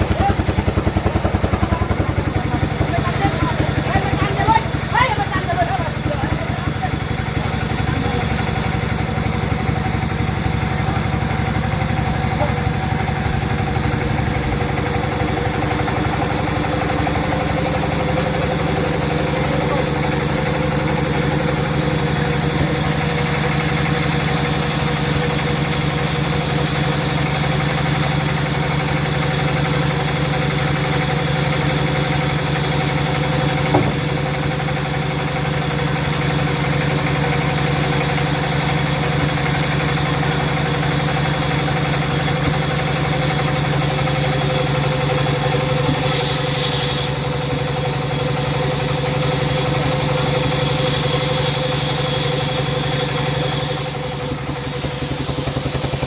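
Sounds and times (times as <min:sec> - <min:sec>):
sawmill machinery drone: 0:00.0 - 0:56.0
short knock: 0:33.7 - 0:34.2.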